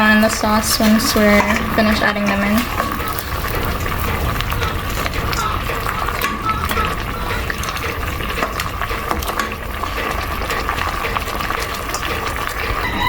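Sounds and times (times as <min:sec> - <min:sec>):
small clicks and knocks in pot: 0:00.0 - 0:13.0
stew bubbling in a pot: 0:00.0 - 0:13.0.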